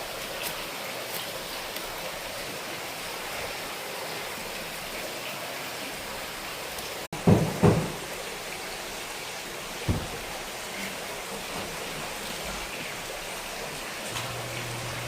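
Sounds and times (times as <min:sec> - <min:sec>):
heavy thumps: 0:09.9 - 0:10.4.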